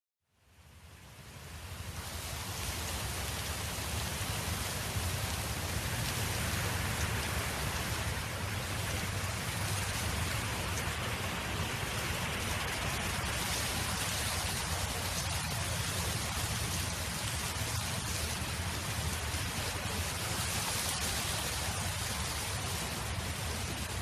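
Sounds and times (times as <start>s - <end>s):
wind rushing with low rumble: 1.0s - 24.0s.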